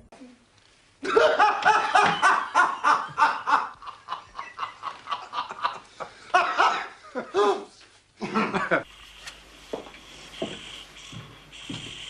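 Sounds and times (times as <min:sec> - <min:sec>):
man laughing: 0:01.0 - 0:08.8.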